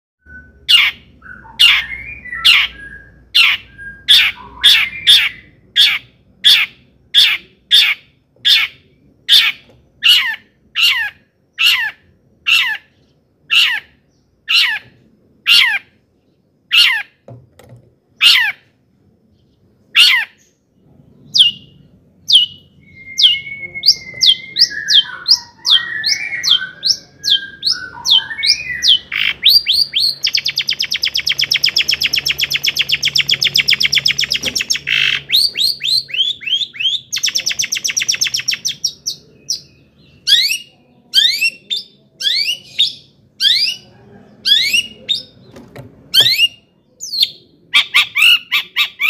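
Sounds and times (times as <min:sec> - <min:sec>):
warbling bird phrase: 0:23.2 - 0:45.4.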